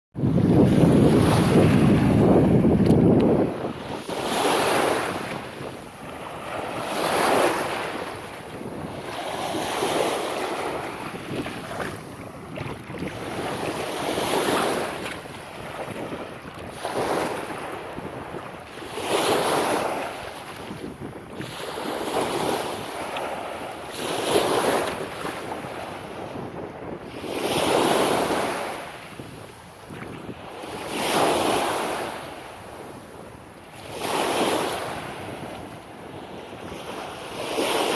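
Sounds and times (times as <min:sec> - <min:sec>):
wind buffeting microphone: 0:00.2 - 0:37.9
small waves breaking on beach: 0:00.3 - 0:37.9.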